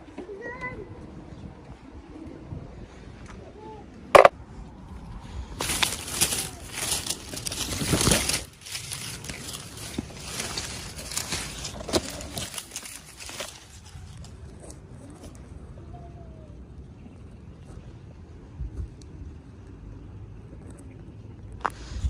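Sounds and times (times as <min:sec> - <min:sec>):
plastic packaging crinkling: 0:05.6 - 0:14.4.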